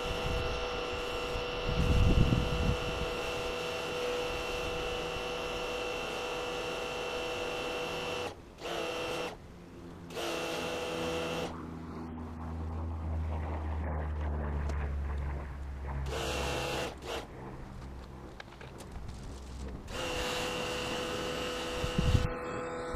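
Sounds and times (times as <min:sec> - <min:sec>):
electric motor whining: 0:00.0 - 0:12.9, 0:14.5 - 0:22.9
low rumble: 0:11.5 - 0:20.0.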